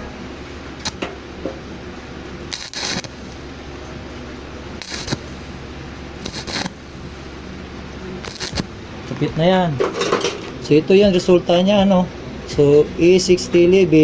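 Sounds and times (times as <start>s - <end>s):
arc welding hiss: 0.8s - 1.1s, 2.5s - 3.5s, 4.8s - 7.4s, 8.2s - 8.9s.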